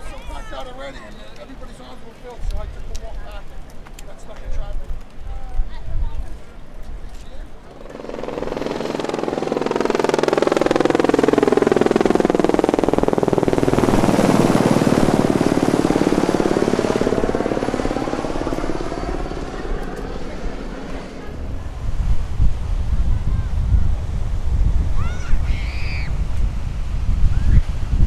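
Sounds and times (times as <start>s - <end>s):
aircraft engine drone passing overhead: 7.5s - 26.2s.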